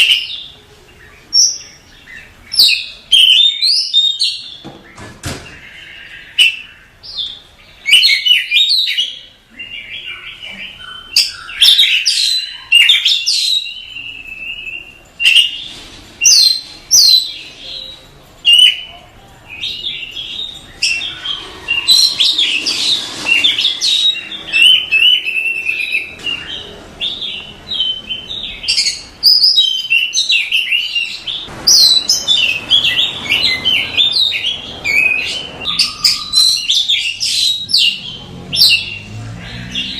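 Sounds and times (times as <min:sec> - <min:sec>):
bird singing whistles and chirps: 0:05.6 - 0:15.6, 0:19.5 - 0:39.9.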